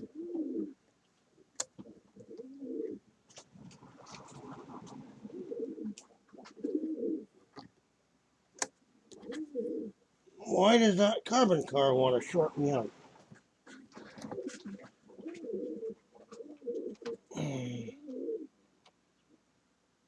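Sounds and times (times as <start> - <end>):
bird cooing: 0.0 - 0.8, 1.9 - 3.0, 4.0 - 7.3, 9.2 - 10.0, 13.7 - 18.5.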